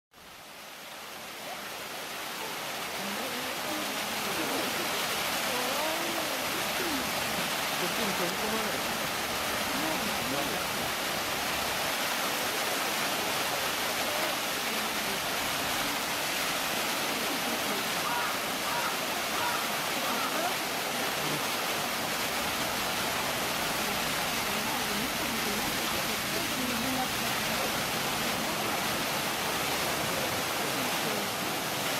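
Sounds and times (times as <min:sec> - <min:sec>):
running water rushing: 0:00.1 - 0:31.9
faint voices: 0:12.2 - 0:21.7.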